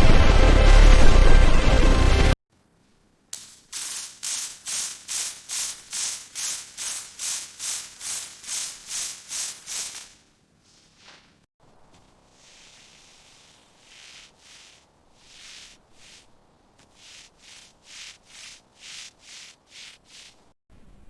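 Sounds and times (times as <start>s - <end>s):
rhythmic hissing scraping strokes: 3.4s - 11.4s, 12.3s - 16.3s, 16.9s - 20.6s.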